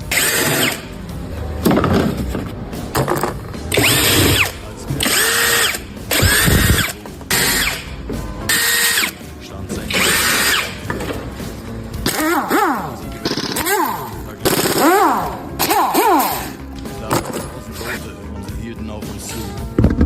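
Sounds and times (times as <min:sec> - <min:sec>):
power tool motor whine: 0:00.0 - 0:00.9, 0:03.7 - 0:07.9, 0:08.5 - 0:09.2, 0:09.9 - 0:10.9.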